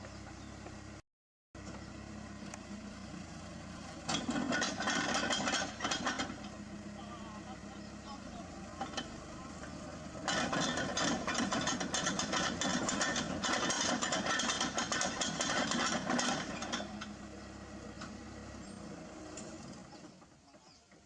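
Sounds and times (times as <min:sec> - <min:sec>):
diesel engine idling: 0:01.6 - 0:20.8
loud mechanical clatter: 0:04.0 - 0:06.6, 0:08.7 - 0:17.3.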